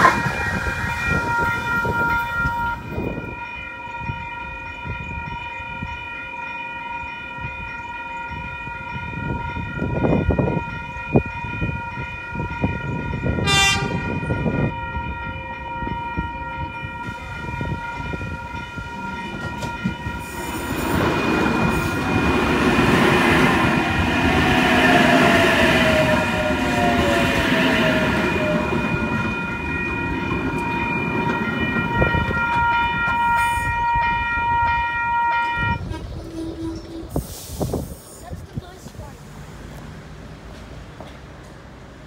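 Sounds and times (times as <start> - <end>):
train wheels rumbling: 0.0 - 3.5, 9.0 - 42.0
train horn toot: 0.0 - 6.0, 9.2 - 20.8, 23.4 - 37.3.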